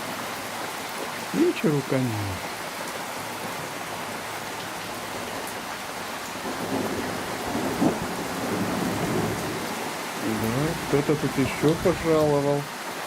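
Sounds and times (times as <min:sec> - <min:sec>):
heavy rain pouring: 0:00.0 - 0:13.0
thunder rumbling: 0:06.4 - 0:09.7.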